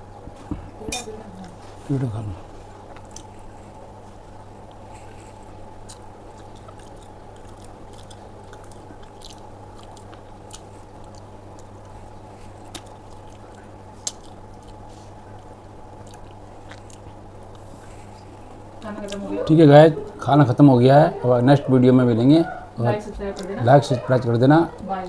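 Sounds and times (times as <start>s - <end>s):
steady low hum: 0.0s - 25.0s
person chewing food: 2.7s - 19.2s.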